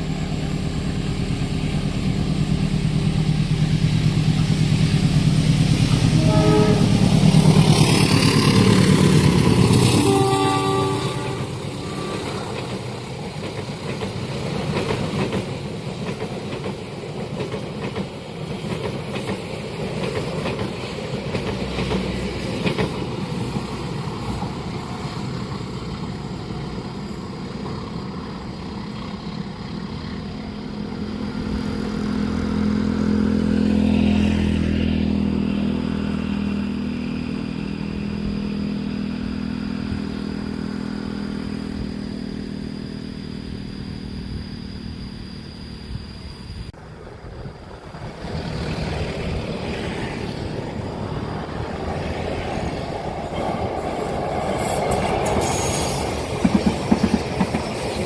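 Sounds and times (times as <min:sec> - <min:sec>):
train wheels clattering over rails: 0:11.3 - 0:30.0, 0:47.5 - 0:58.0.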